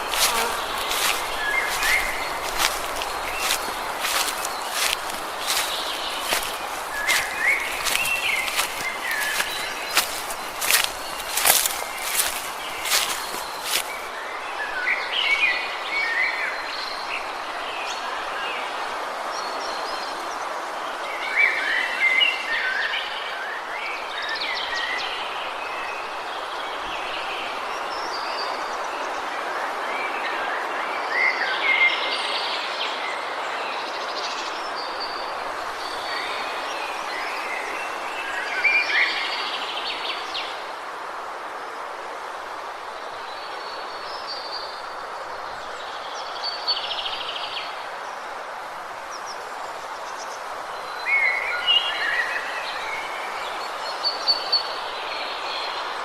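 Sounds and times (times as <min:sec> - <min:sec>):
birds calling and singing: 0:00.0 - 0:15.5.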